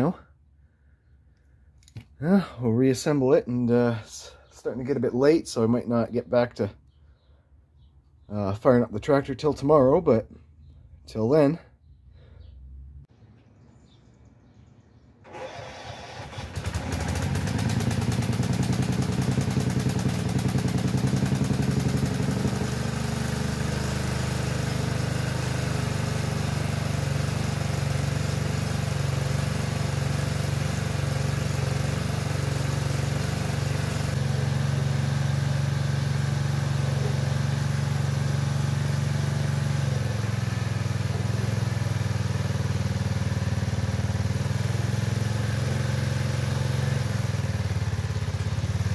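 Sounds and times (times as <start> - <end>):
small engine starting and running: 15.2 - 48.9.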